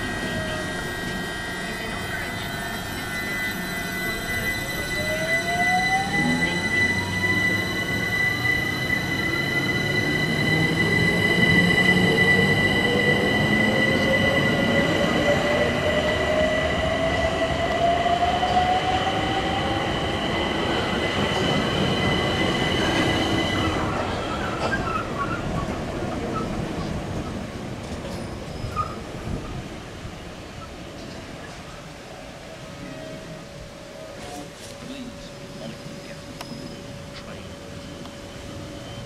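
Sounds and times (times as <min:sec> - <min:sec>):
high-pitched squealing tones: 0:00.0 - 0:17.2
train whine rising in pitch: 0:00.0 - 0:30.3, 0:31.8 - 0:39.0.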